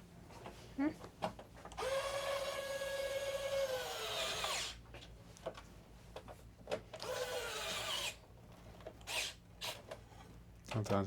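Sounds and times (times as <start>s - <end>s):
electric screwdriver motor whining: 1.8s - 4.8s, 7.0s - 8.2s, 9.0s - 9.8s.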